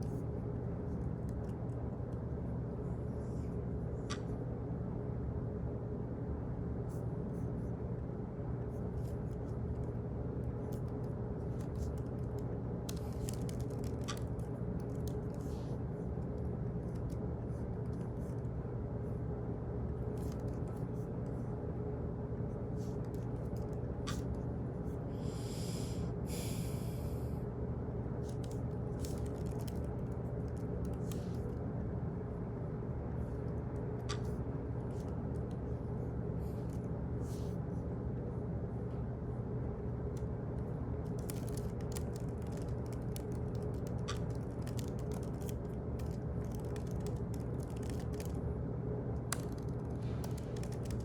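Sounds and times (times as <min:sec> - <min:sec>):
steady low hum: 0:00.0 - 0:51.0
irregular clicks and ticks: 0:10.7 - 0:15.5, 0:41.0 - 0:48.4, 0:49.1 - 0:51.0.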